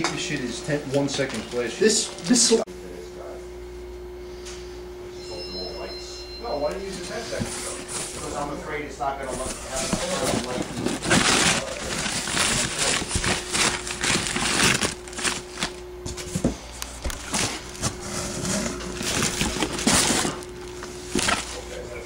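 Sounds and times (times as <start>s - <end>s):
faint steady hum: 0.0s - 22.0s
handling noise rustling: 9.2s - 21.8s.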